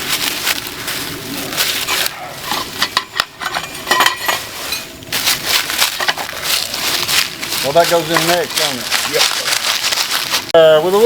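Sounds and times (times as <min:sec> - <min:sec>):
rustling: 0:00.0 - 0:10.6
metal poles clinking and rattling: 0:01.7 - 0:10.4.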